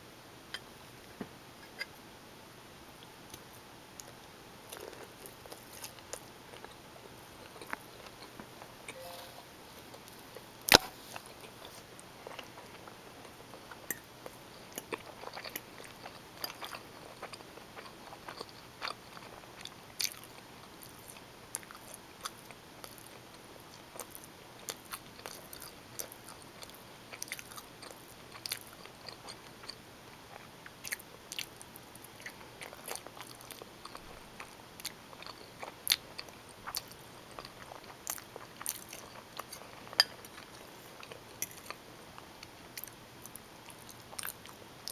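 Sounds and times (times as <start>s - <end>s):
close chewing with wet mouth clicks: 7.4s - 8.4s, 10.7s - 44.9s.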